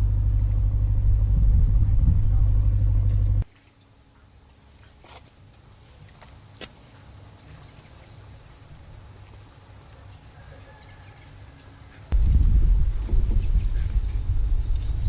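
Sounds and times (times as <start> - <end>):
insects buzzing: 3.4 - 15.0.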